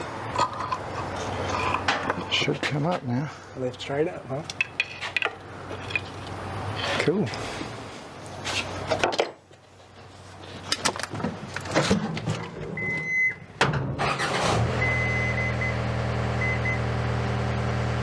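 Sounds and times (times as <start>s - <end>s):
electric lift motor humming: 14.4s - 18.0s.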